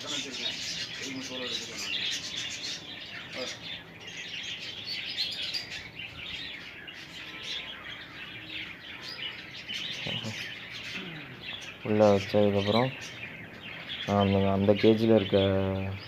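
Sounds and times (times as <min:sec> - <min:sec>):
budgerigars chirping: 0:00.0 - 0:16.0.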